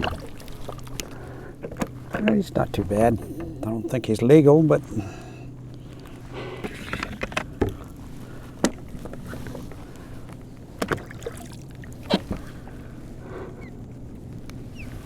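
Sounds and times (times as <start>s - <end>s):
low steady hum: 0.0s - 15.0s
knocks and clicks on kayak: 1.6s - 3.8s, 10.8s - 11.1s.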